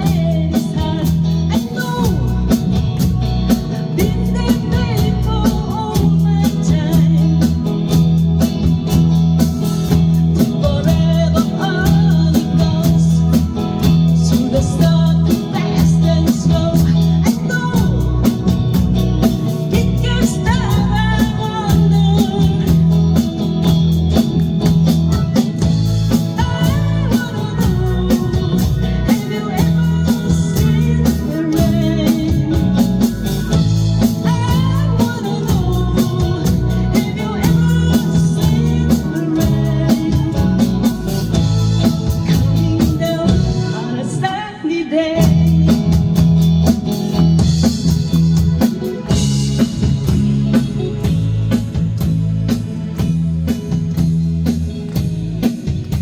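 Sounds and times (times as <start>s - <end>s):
person singing: 0.0s - 8.3s, 9.6s - 24.5s, 25.2s - 46.4s
live rock band playing: 0.0s - 56.0s.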